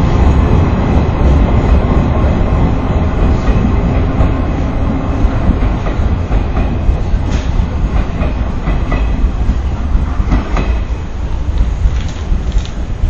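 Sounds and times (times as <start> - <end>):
train running rumble: 0.0 - 13.0
wheels clacking over rail joints: 2.6 - 13.0.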